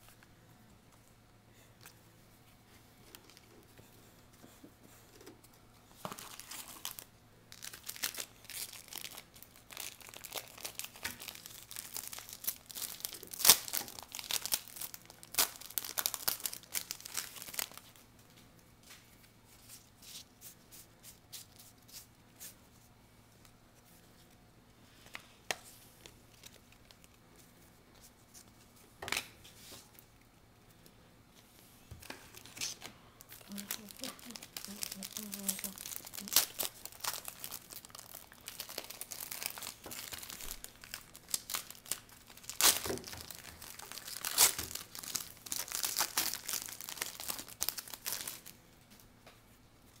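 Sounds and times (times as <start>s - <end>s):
foil wrapper tearing and crinkling: 6.0s - 18.0s, 32.4s - 48.6s.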